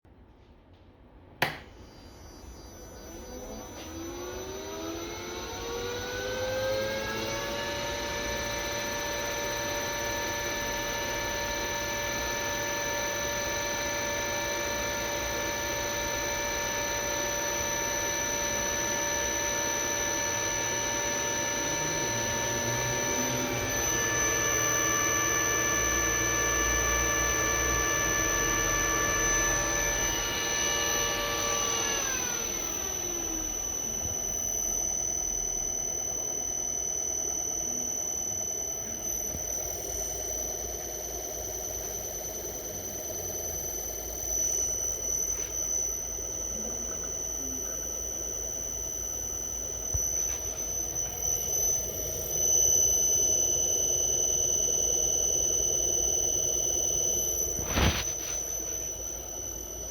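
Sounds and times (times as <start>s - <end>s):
sharp click: 1.4s - 1.8s
electric motor whine: 1.8s - 59.9s.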